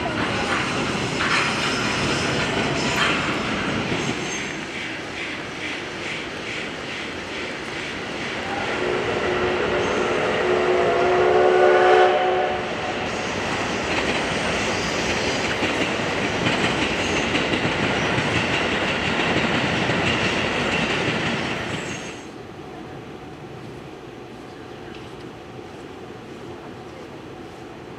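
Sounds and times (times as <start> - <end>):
steam locomotive chuffing: 0.0 - 22.3
steam whistle: 8.5 - 12.8.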